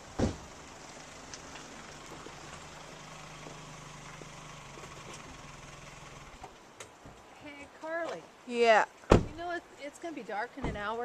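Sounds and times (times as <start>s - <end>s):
car engine idling: 0.0s - 6.6s
sharp thump: 0.2s - 0.4s, 9.1s - 9.4s.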